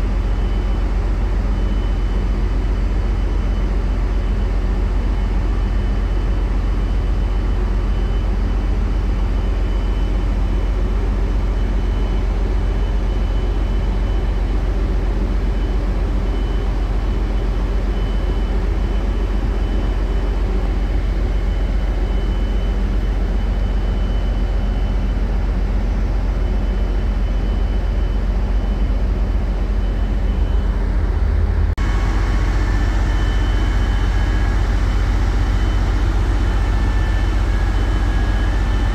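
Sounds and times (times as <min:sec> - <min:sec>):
faint steady whine: 0:00.0 - 0:38.9
diesel engines rumbling: 0:10.2 - 0:38.9.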